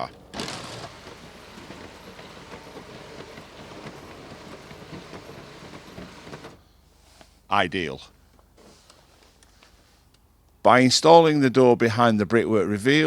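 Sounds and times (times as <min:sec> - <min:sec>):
roller garage door rattling: 0:00.0 - 0:06.6.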